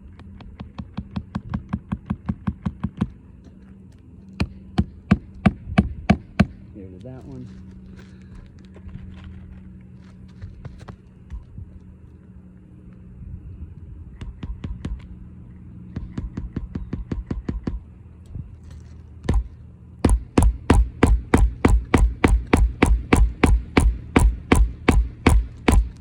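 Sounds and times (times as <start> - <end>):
steady low hum: 0.0 - 26.0
hammer driving nails: 19.2 - 26.0.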